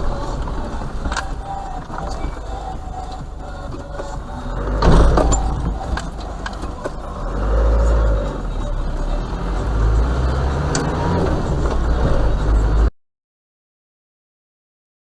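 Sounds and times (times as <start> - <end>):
car engine and road rumble: 0.0 - 12.9.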